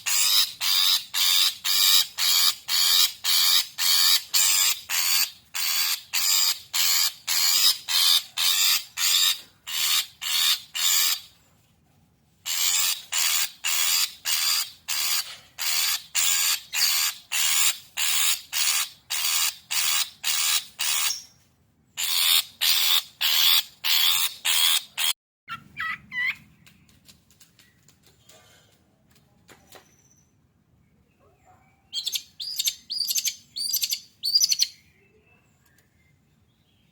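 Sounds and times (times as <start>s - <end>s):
bird harsh rasping calls: 0.0s - 11.3s, 12.5s - 21.3s, 22.0s - 26.4s.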